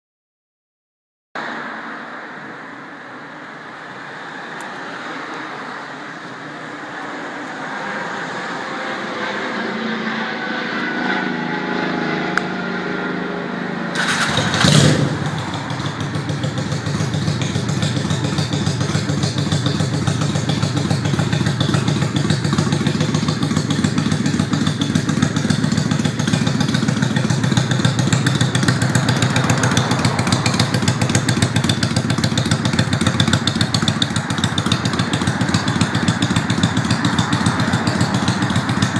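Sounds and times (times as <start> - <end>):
engine starter whirring: 13.9 - 15.2
engine firing burst: 13.9 - 15.5
motorcycle engine idling: 14.0 - 38.9.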